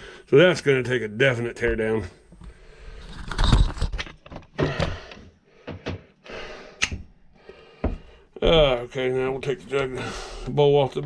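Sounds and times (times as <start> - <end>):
sharp click: 6.8 - 7.0.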